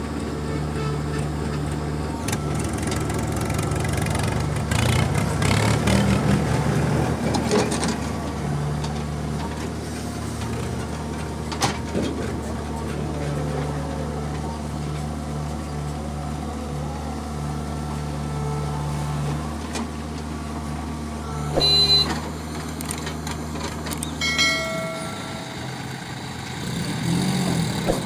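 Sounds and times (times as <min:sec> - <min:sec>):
heavy diesel engine running: 0:00.0 - 0:28.0
machinery clattering: 0:21.5 - 0:28.0.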